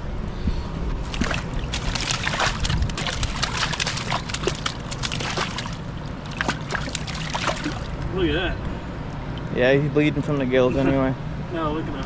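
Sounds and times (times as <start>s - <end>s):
splashy crackles: 1.0s - 8.0s
water sloshing and splashing: 1.0s - 8.1s.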